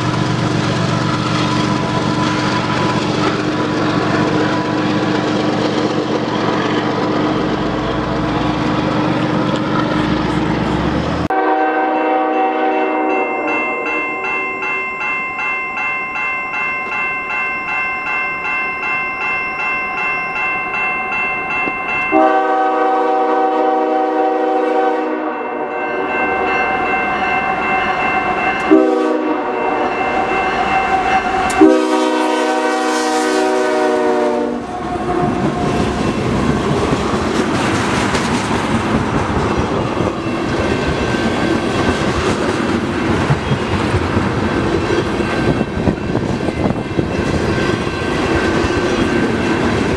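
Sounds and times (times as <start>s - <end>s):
train rumble and wheel clatter: 0.0s - 49.9s
crossing bell ringing: 0.8s - 37.9s, 38.7s - 49.9s
locomotive air horn: 11.3s - 13.8s, 22.1s - 25.8s, 28.6s - 35.8s.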